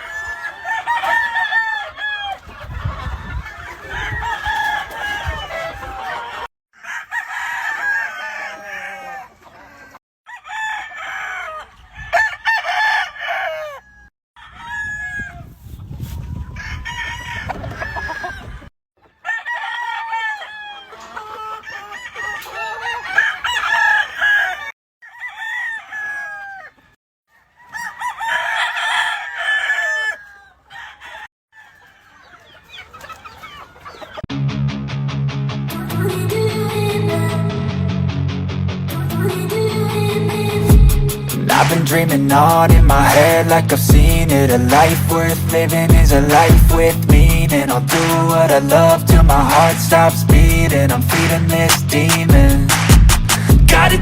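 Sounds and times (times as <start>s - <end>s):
chickens clucking: 0.0s - 10.0s, 11.1s - 24.7s, 25.9s - 34.3s
roosters crowing: 0.0s - 15.6s, 16.4s - 34.3s, 39.0s - 54.0s
music with steady beat: 40.7s - 54.0s.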